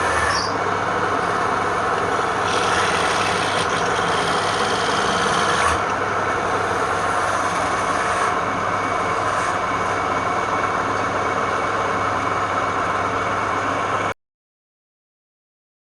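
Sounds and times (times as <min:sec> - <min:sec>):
wood lathe motor whirring: 0:00.0 - 0:10.1.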